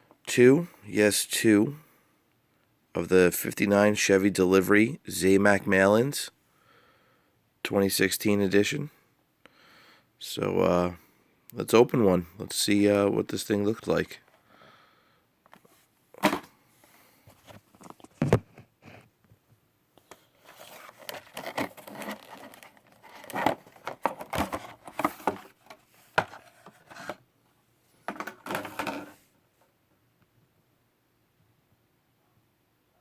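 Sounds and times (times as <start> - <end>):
packaging rustling and tearing: 20.1 - 27.2.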